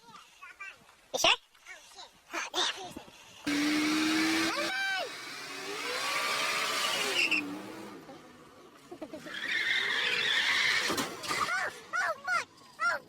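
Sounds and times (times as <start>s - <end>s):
car tyres skidding: 3.5s - 8.1s, 9.0s - 12.1s.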